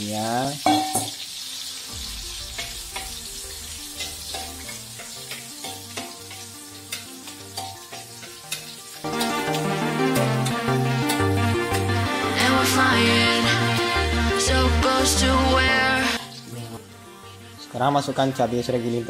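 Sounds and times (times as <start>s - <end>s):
shallots sizzling in oil: 0.0s - 13.9s, 15.8s - 19.0s
soft background music: 0.0s - 19.0s
spatula clicking against pan: 6.0s - 8.8s.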